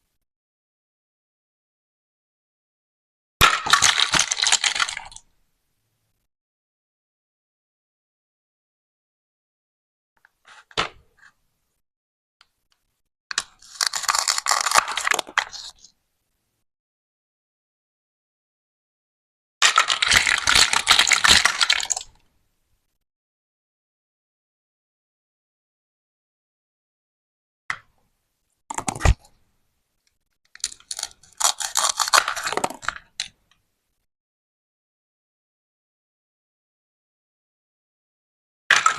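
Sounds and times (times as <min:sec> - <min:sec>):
plastic toy pieces crackling apart: 0:03.6 - 0:05.2, 0:13.3 - 0:15.8, 0:19.6 - 0:22.1, 0:30.5 - 0:33.4.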